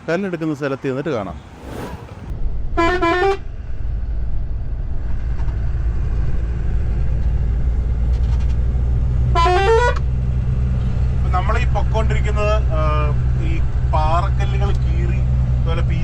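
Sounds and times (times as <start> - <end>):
truck engine drone: 1.3 - 16.0
vehicle horn: 2.7 - 3.5, 9.3 - 10.1.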